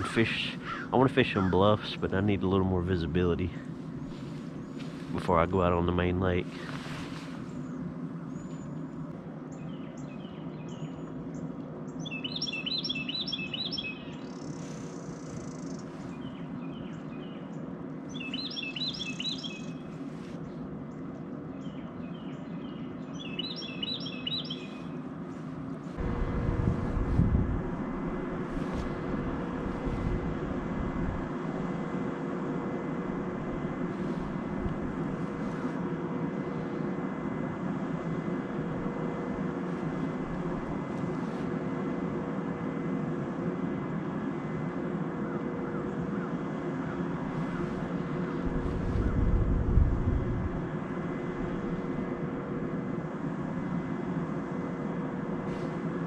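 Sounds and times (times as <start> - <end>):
loud steady noise: 0.0 - 9.5, 24.6 - 56.0
low hum: 0.0 - 56.0
small bird chirping: 11.9 - 19.8, 21.6 - 26.0.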